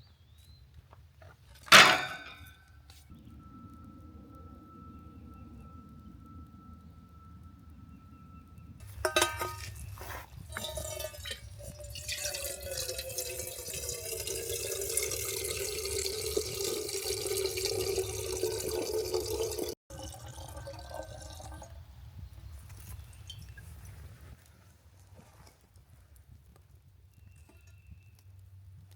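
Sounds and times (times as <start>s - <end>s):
water pouring into container: 9.6s - 21.7s.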